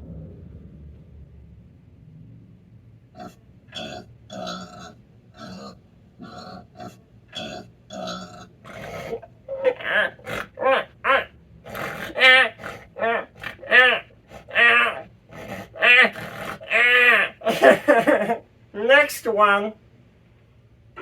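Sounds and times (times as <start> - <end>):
pig grunting and squealing: 3.1 - 17.8.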